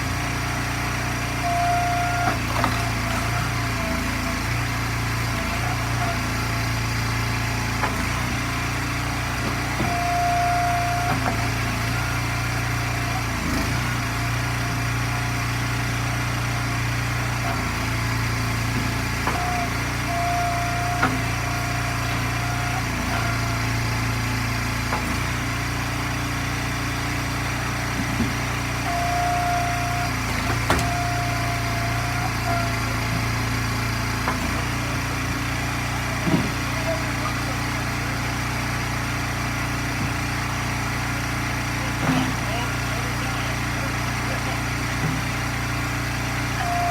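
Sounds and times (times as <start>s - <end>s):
small gas engine running: 0.0s - 46.9s.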